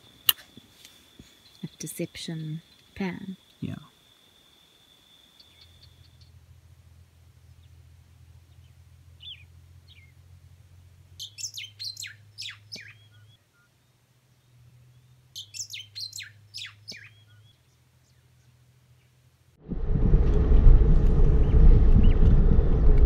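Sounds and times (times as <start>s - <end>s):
bird singing: 0.0s - 6.5s, 7.4s - 10.3s, 11.1s - 19.3s.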